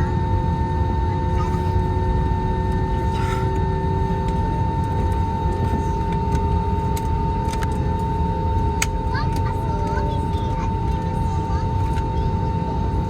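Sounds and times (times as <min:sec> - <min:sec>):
jet engine rumble and whine: 0:00.0 - 0:13.0.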